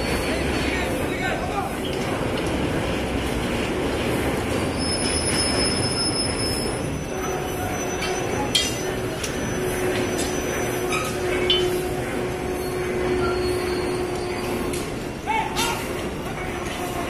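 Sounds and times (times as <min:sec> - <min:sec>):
train wheels rumbling on rails: 0:00.0 - 0:17.0
high-pitched wheel squeals: 0:04.5 - 0:15.8.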